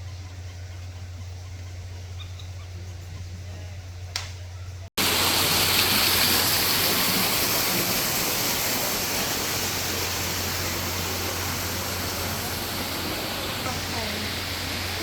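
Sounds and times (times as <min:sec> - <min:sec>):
waterfall roaring: 0:05.0 - 0:15.0.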